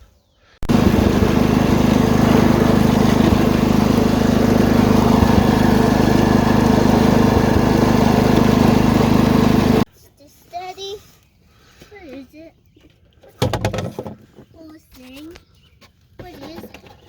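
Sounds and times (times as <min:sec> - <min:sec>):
tractor engine droning: 0:00.6 - 0:09.9.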